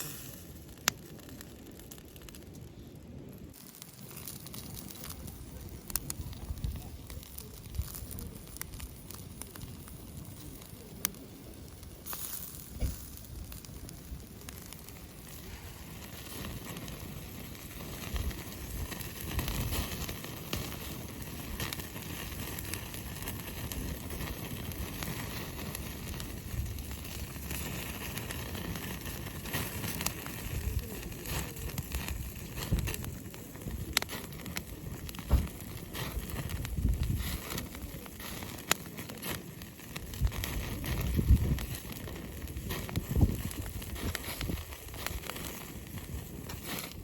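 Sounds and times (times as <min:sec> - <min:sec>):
campfire crackling: 0:00.0 - 0:47.0
sharp fire pops: 0:00.0 - 0:47.0.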